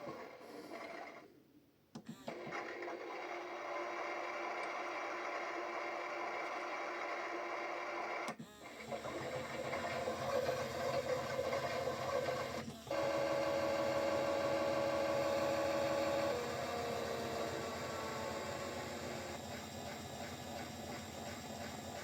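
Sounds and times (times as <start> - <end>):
small electric motor whirring: 8.5 - 22.0.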